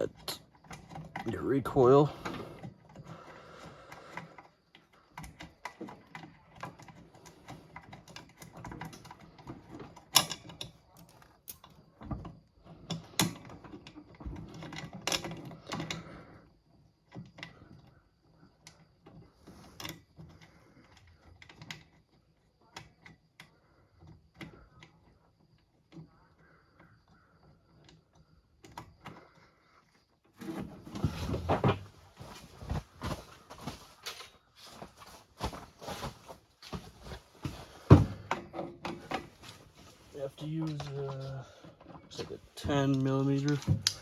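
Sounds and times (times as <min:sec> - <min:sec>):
tools clicking and knocking on metal: 0:00.1 - 0:01.4, 0:05.2 - 0:11.8, 0:42.7 - 0:44.0.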